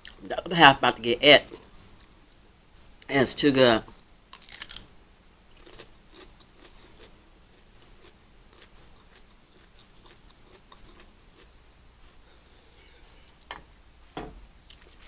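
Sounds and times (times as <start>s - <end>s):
person chewing food: 4.3s - 4.9s, 5.5s - 13.5s, 14.6s - 15.0s
small crunches: 4.3s - 4.9s, 14.7s - 15.0s.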